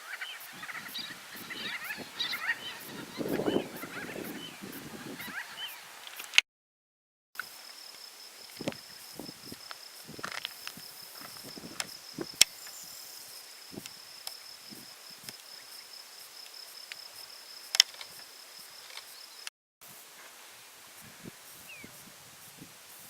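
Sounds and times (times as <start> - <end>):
insect trilling: 0.0 - 6.3, 7.4 - 19.5.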